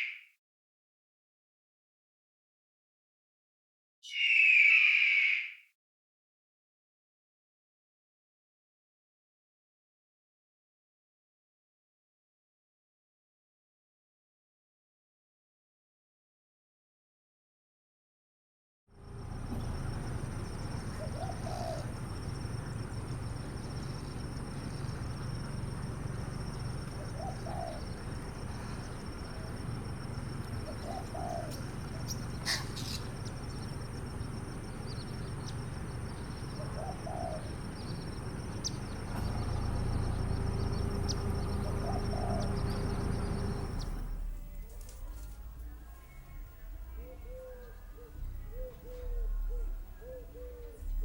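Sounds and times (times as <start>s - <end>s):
bird cooing: 19.5s - 44.0s, 46.9s - 51.0s.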